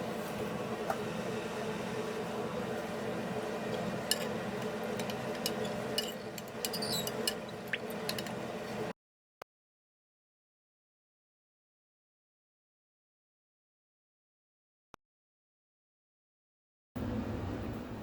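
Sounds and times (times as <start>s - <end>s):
steady machine hum: 0.0s - 8.9s, 17.0s - 18.0s
small hard parts clinking: 5.0s - 7.4s.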